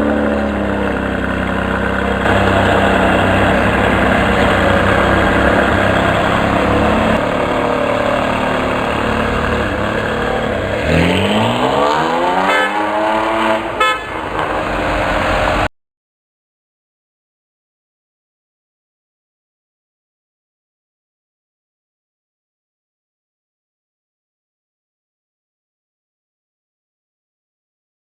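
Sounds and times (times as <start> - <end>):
exhaust crackles: 0.0 - 15.7
sports car engine accelerating: 0.0 - 15.7.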